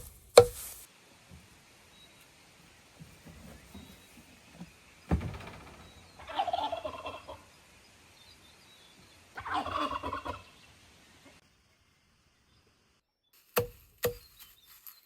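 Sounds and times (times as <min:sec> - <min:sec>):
turkey gobbling: 0:06.2 - 0:07.4, 0:09.4 - 0:10.5.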